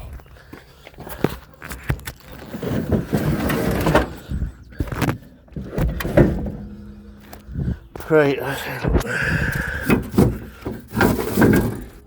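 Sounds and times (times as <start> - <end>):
objects knocking and scraping: 1.6 - 8.1, 8.8 - 12.0.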